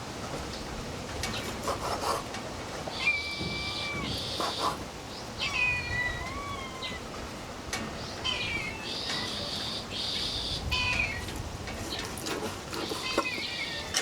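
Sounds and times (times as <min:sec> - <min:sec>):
meow-like animal cries: 0:03.0 - 0:04.6, 0:05.4 - 0:07.1, 0:08.2 - 0:11.4, 0:12.8 - 0:14.0.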